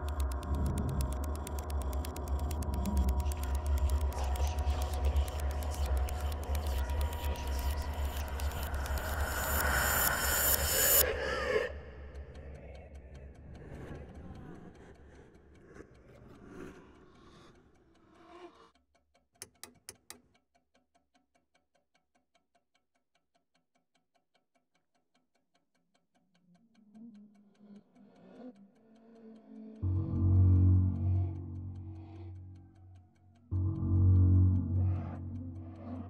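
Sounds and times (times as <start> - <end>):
clock ticking fast: 0.0 - 11.0, 19.4 - 20.4, 27.8 - 36.0
low rumbling drone: 0.0 - 11.2, 29.8 - 36.0
lamp switch clicking: 19.4 - 20.2.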